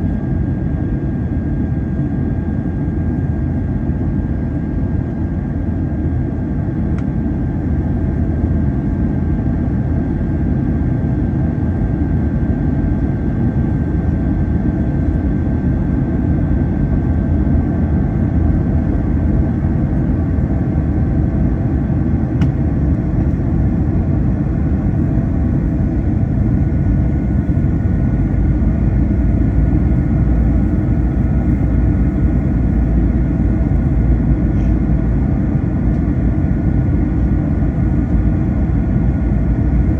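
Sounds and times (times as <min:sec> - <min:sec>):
jet engine cabin rumble: 0:00.0 - 0:39.9
high engine whine: 0:12.3 - 0:39.9.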